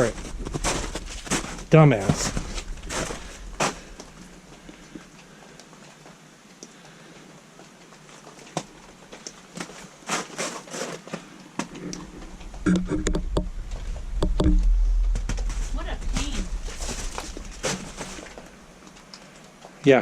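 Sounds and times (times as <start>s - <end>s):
footsteps crunching over debris: 0.0s - 5.1s, 13.2s - 19.1s.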